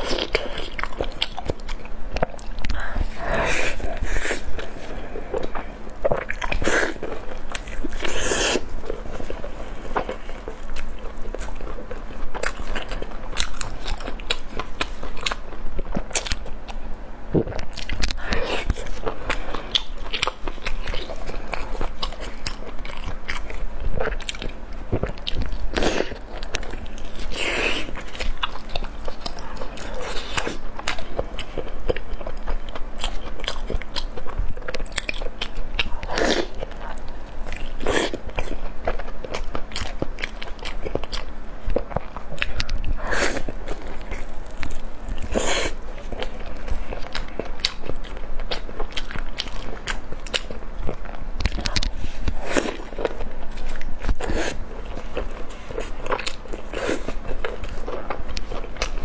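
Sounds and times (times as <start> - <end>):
person chewing soft food: 0.0 - 59.0.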